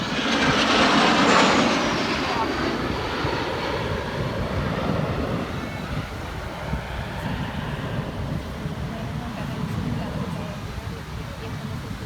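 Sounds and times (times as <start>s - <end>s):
aircraft engine noise: 0.0s - 12.0s.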